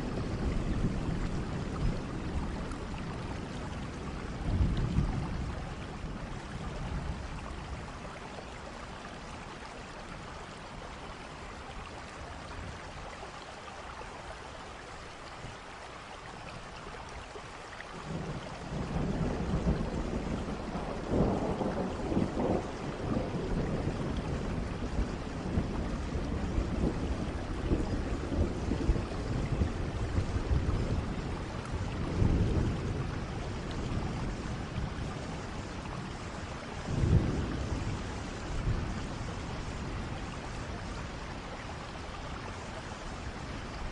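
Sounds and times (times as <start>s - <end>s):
thunder rumbling: 0.0s - 8.0s, 18.1s - 42.2s
steady rain: 0.0s - 43.9s.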